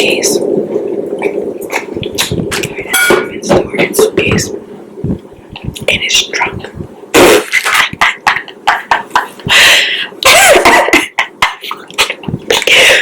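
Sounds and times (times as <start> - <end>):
woman laughing hard: 7.6 - 13.0.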